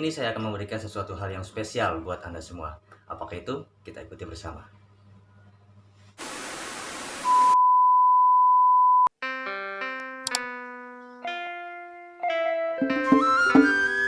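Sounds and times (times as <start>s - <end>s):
static hiss: 6.2s - 7.6s
test-tone beep: 7.3s - 9.1s
click: 10.2s - 10.4s.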